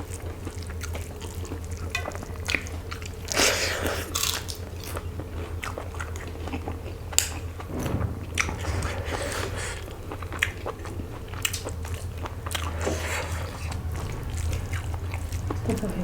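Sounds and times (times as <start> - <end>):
chewing and mouth sounds: 0.0 - 7.6, 8.7 - 16.0
steady low hum: 4.6 - 16.0.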